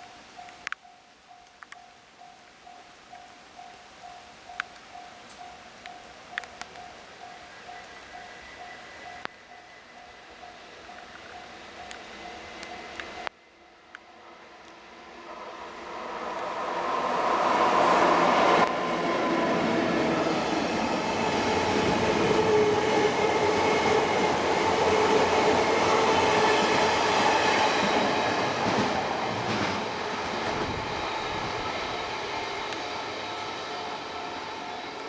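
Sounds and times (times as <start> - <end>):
level crossing warning bell: 0.0 - 14.5.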